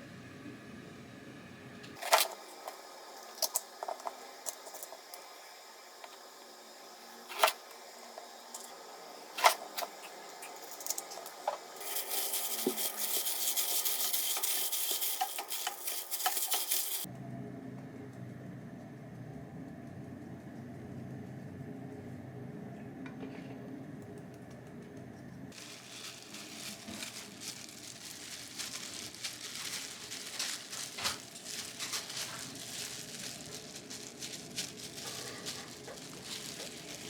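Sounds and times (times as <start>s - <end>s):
steady crackling hiss: 25.6s - 37.0s.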